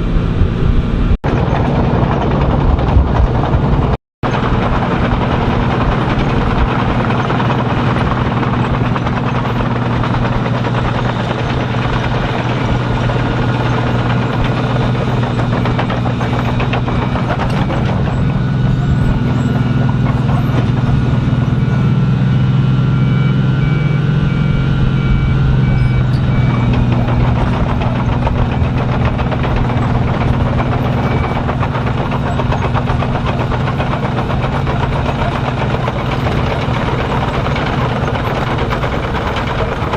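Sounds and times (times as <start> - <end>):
diesel machinery engine hum: 0.0 - 39.9
grinding noise: 0.0 - 39.9
reversing alarm beeping: 11.7 - 38.0.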